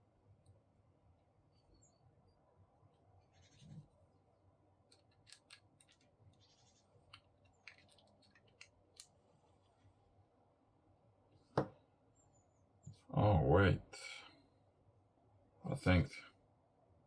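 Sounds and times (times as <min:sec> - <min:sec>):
plastic parts clicking and scraping: 0:04.9 - 0:06.4, 0:07.0 - 0:09.2.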